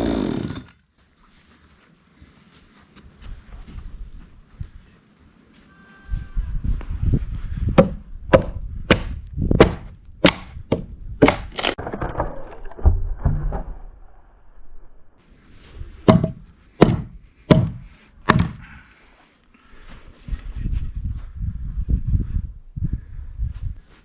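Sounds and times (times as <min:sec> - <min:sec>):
axe blows splitting log: 0:07.8 - 0:12.2, 0:16.0 - 0:18.6.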